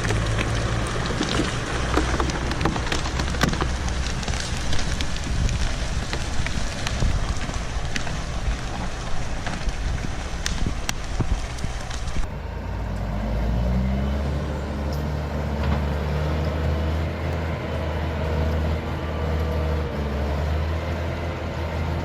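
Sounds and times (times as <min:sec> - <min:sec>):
crackling crunching noise: 0:00.0 - 0:12.4
diesel engine running: 0:00.0 - 0:22.0.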